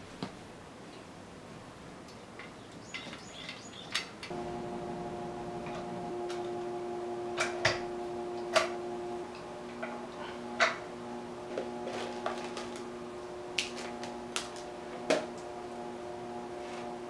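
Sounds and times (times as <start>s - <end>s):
steady hum of several tones: 4.3s - 17.0s.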